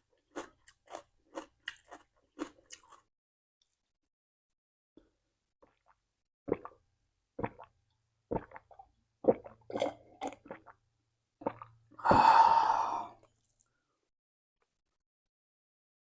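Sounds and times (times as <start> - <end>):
person chewing: 0.2 - 3.1, 11.4 - 13.6.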